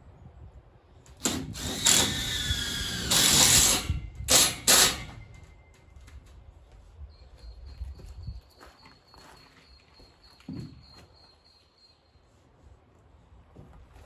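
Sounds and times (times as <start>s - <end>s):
power tool running in bursts: 1.2s - 5.2s.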